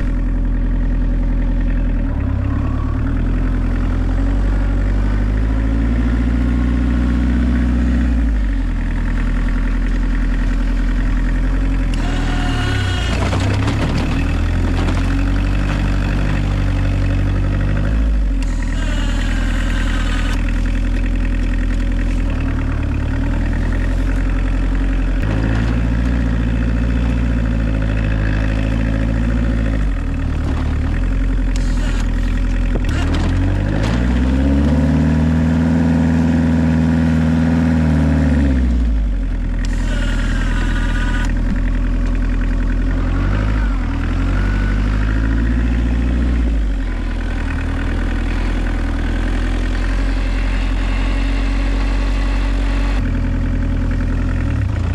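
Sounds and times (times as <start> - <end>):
diesel engine revving: 0.0 - 54.9.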